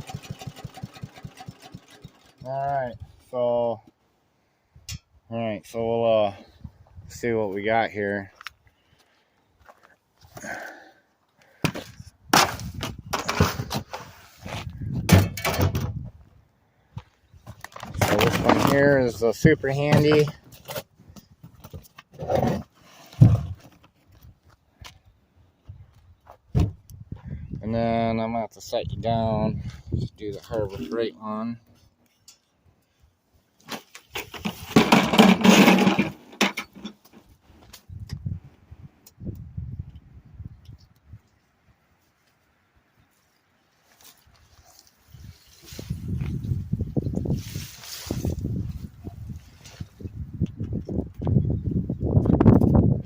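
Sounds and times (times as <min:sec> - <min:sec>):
loud rustling clatter: 0:00.0 - 0:02.5, 0:33.7 - 0:37.3
wood chipper crackling branches: 0:00.0 - 0:02.5.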